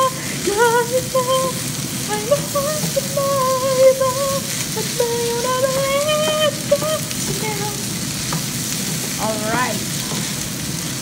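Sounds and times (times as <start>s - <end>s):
rice sizzling in a pan: 0.0s - 11.0s
spatula knocking on pan: 8.2s - 10.3s.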